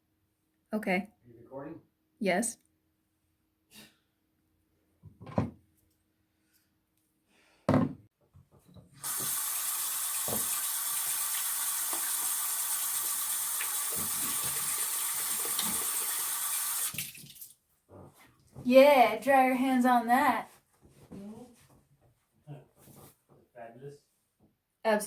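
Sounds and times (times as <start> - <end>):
thump: 7.7 - 8.0
tap running into a sink: 9.0 - 17.2.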